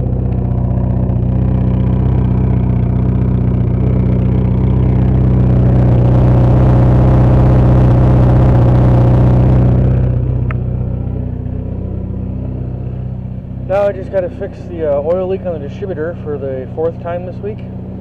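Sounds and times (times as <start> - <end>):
car engine idling loudly: 0.0 - 18.0.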